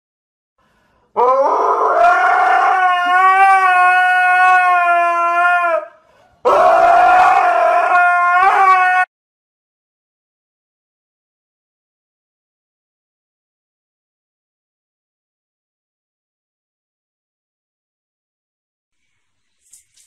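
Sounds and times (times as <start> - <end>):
husky howling: 1.2 - 9.1.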